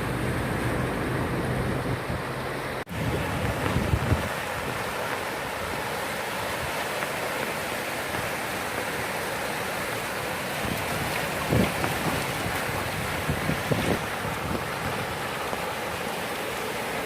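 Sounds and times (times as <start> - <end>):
wind buffeting microphone: 0.0 - 7.5, 10.5 - 15.6
rushing floodwater: 0.0 - 17.0.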